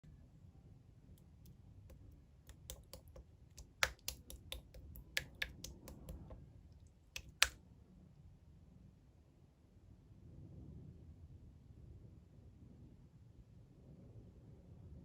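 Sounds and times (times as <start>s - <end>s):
slime clicking and popping: 1.9s - 6.4s, 7.2s - 7.6s.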